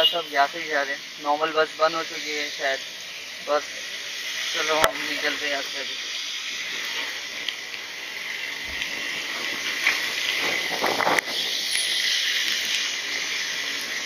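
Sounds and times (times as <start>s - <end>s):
heavy rain hissing: 0.0s - 14.0s
motorcycle tyres on flooded road: 0.0s - 14.0s.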